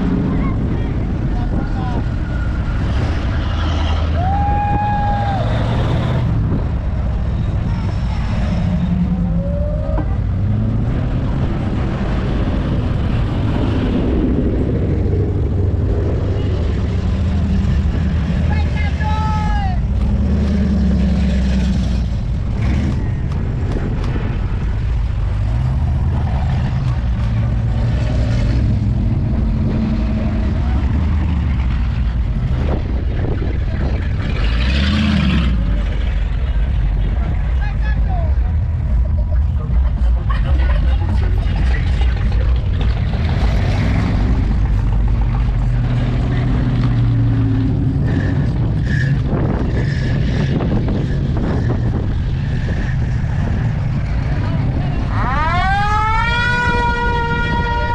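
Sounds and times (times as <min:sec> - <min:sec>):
car engines at low revs: 0:00.0 - 0:57.9.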